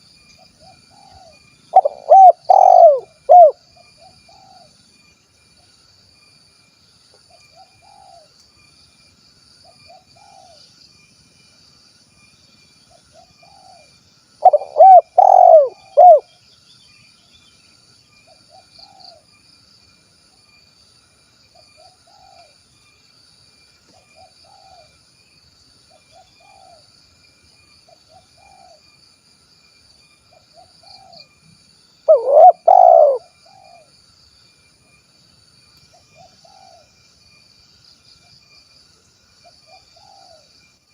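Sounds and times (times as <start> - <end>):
dove cooing: 0.6 - 4.7, 13.1 - 16.3, 32.1 - 33.9, 39.7 - 40.4.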